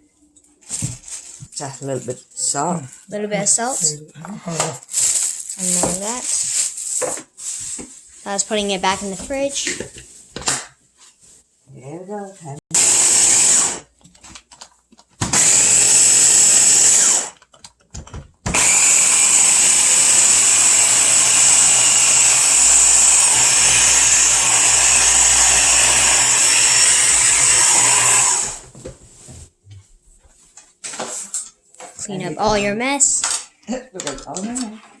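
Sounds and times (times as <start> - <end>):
electric blender running: 4.6 - 7.0, 12.7 - 13.9, 15.2 - 17.4, 18.5 - 28.7.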